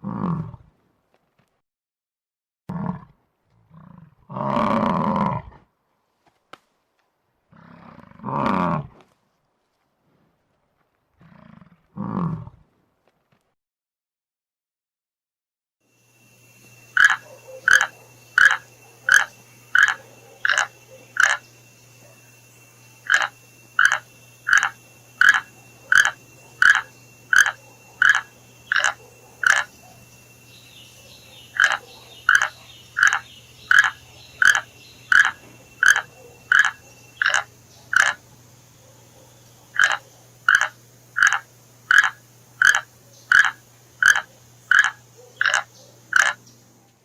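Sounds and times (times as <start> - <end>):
frog croaking: 3.7 - 5.4, 16.2 - 46.7.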